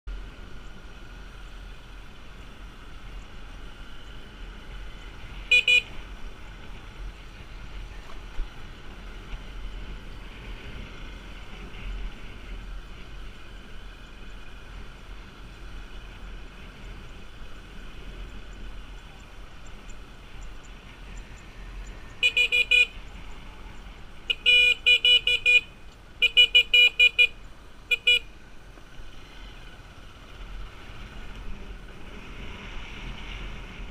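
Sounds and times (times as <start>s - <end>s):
motorbike traffic: 0.1s - 33.9s
horns beeping: 5.4s - 6.2s, 21.8s - 28.4s.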